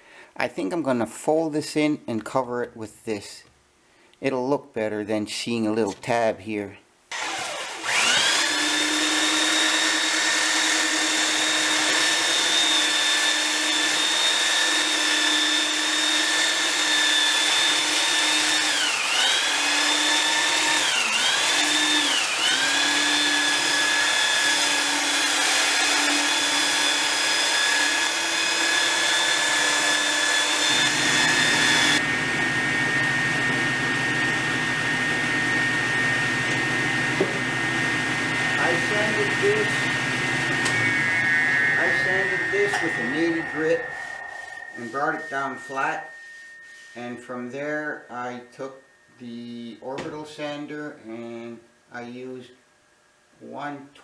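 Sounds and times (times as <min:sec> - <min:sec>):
power tool motor whining: 0:07.1 - 0:47.0.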